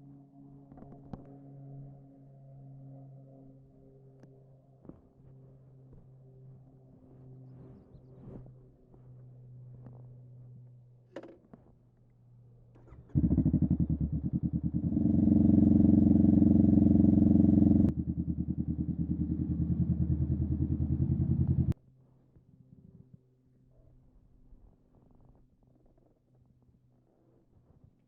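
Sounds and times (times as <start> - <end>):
motorcycle engine running: 12.8 - 21.8.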